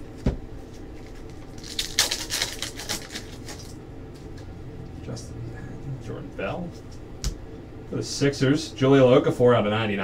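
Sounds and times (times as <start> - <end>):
wrapper crinkling torn open: 1.0 - 3.8.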